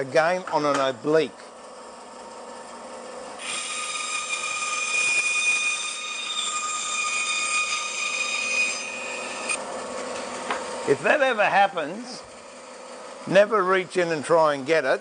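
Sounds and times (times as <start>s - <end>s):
bandsaw cutting wood: 3.3s - 13.5s.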